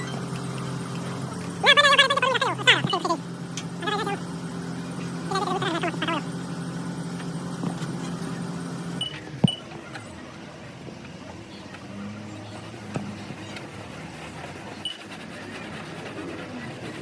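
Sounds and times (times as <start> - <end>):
machine hum: 0.0 - 9.4.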